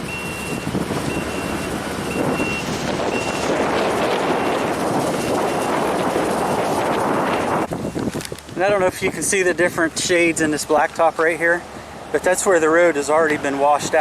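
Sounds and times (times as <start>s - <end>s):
backup alarm beeping: 0.0s - 6.8s
heavy machinery running: 0.0s - 7.8s.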